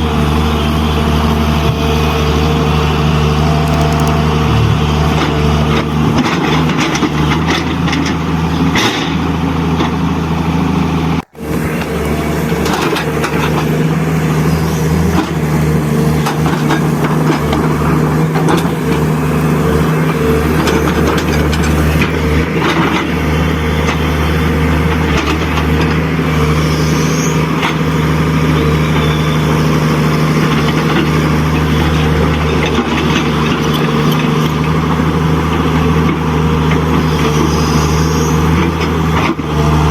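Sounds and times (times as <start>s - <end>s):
model truck diesel engine: 0.0s - 39.9s
small clicks and scrapes: 3.6s - 4.8s.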